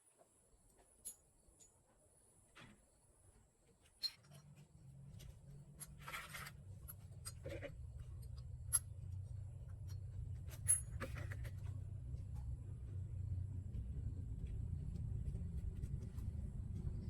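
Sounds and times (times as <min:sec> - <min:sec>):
low hum: 0:04.8 - 0:17.0.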